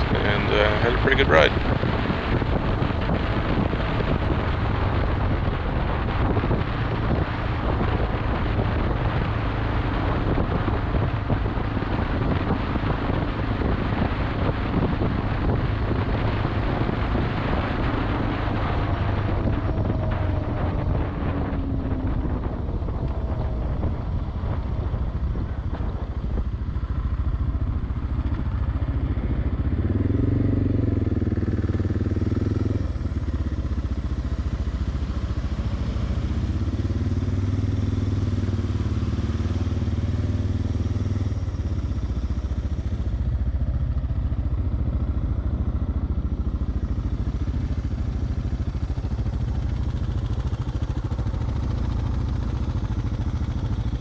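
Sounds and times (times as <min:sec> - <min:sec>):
motorcycle engine rumbling: 0:00.0 - 0:04.8, 0:42.4 - 0:54.0.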